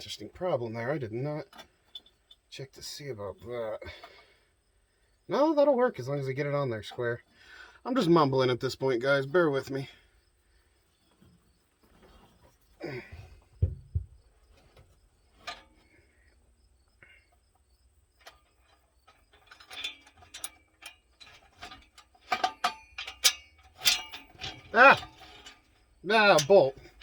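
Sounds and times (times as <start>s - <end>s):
low thumps: 13.0s - 14.6s
metallic clicks of hand tools: 18.2s - 27.0s.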